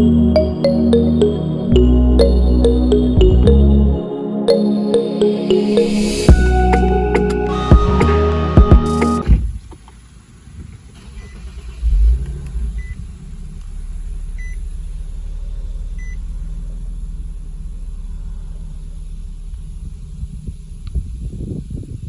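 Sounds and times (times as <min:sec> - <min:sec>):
car engine starting and idling: 0:06.1 - 0:22.0.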